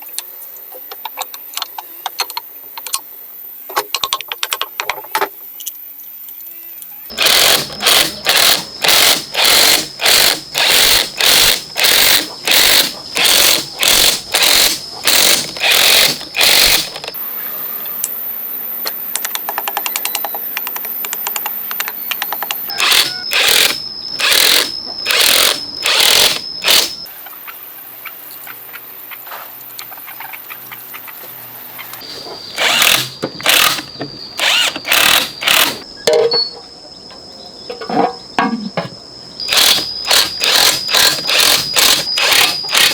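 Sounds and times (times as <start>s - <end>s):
power tool working metal: 7.1s - 17.2s, 22.7s - 27.1s, 32.5s - 35.9s, 39.4s - 42.9s.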